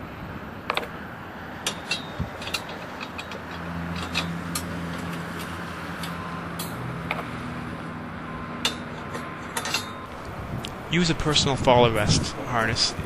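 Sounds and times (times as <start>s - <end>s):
motor engine humming: 0.0s - 13.0s
sharp metallic clicks: 1.6s - 7.4s.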